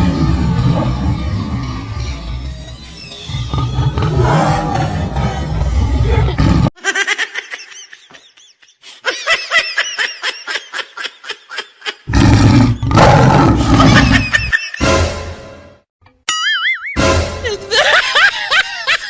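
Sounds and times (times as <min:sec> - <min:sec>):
tiger roar: 0:00.0 - 0:02.5, 0:03.3 - 0:06.7, 0:12.1 - 0:14.3
rapid pulsing laughter: 0:05.2 - 0:12.1, 0:13.6 - 0:14.8.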